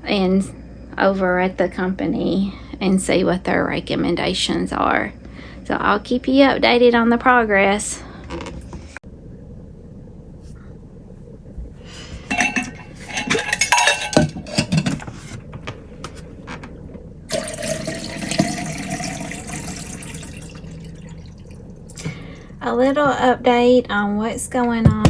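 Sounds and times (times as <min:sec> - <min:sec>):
glass and dishes clinking: 0:12.3 - 0:15.1
water pouring into a container: 0:17.3 - 0:22.6.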